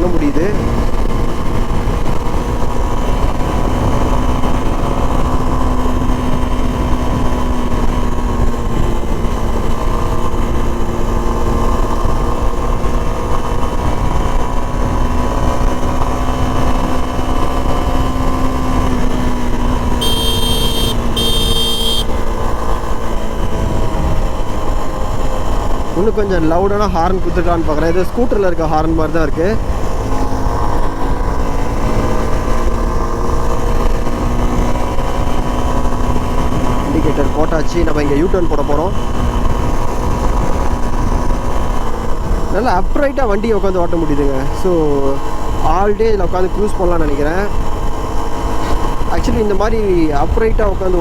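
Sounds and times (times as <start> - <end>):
motorcycle engine cruising: 0.0 - 51.0
road noise: 0.0 - 51.0
motorcycle horn blasts: 20.0 - 22.3.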